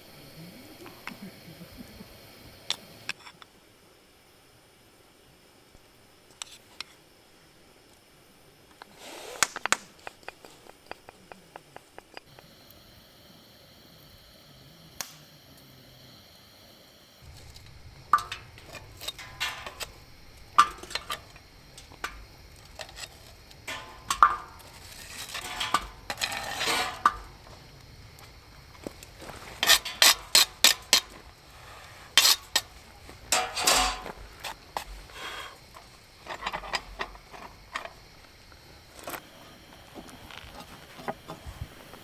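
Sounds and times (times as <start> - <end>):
metal cookware clinking: 17.2 - 38.1
metal cookware scraping: 17.2 - 38.3.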